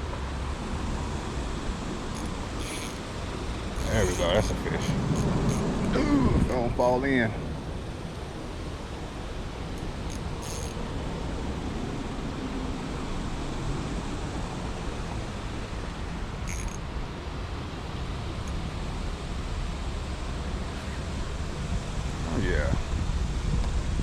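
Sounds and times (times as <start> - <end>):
creek water flowing: 0.0 - 22.3
wind on microphone: 0.0 - 24.0.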